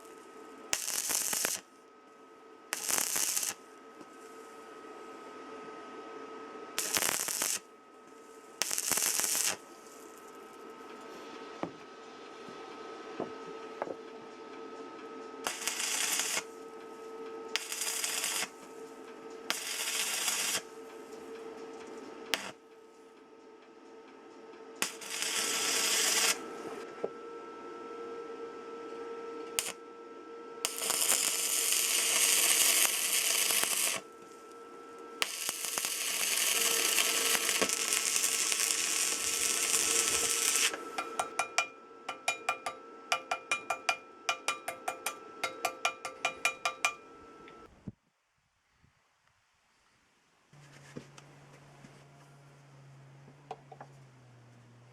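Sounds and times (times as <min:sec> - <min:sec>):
welding arc crackling: 0:00.0 - 0:01.7, 0:02.7 - 0:04.6, 0:06.8 - 0:07.7, 0:08.3 - 0:10.4, 0:15.4 - 0:16.6, 0:17.5 - 0:18.9, 0:19.5 - 0:20.8, 0:22.3 - 0:22.6, 0:24.8 - 0:26.4, 0:29.6 - 0:29.8, 0:30.6 - 0:34.1, 0:35.2 - 0:47.0
electrical hum: 0:00.0 - 0:48.0.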